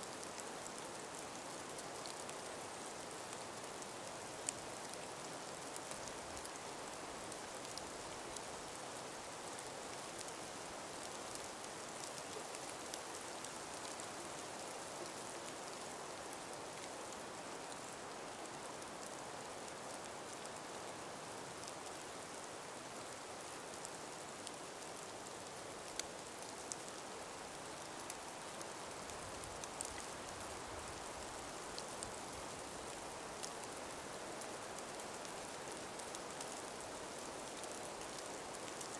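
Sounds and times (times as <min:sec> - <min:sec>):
soft breeze hiss: 0:00.0 - 0:38.9
small ticks: 0:05.8 - 0:06.5, 0:24.4 - 0:27.2, 0:27.8 - 0:31.2, 0:31.8 - 0:33.8, 0:34.7 - 0:38.9.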